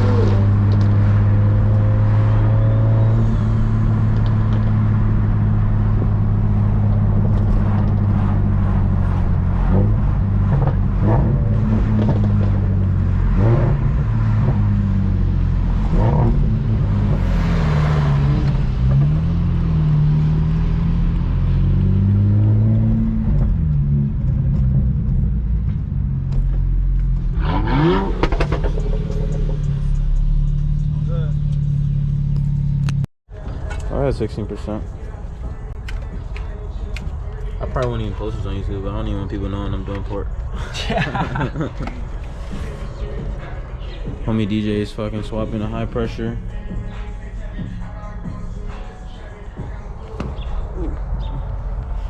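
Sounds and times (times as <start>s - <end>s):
engine revving: 0.0s - 33.0s.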